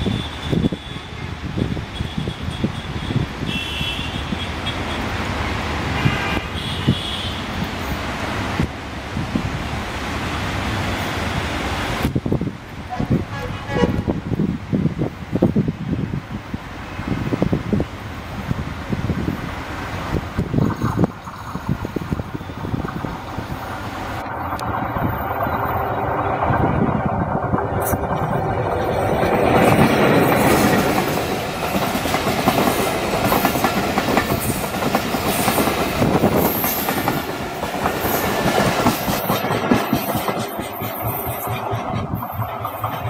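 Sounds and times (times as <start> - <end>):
train wheels clattering over rails: 20.4 - 43.0.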